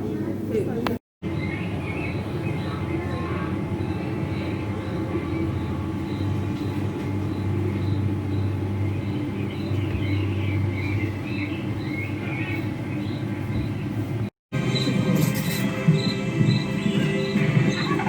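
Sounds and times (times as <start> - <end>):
low mechanical rumble and hum: 0.0 - 18.0.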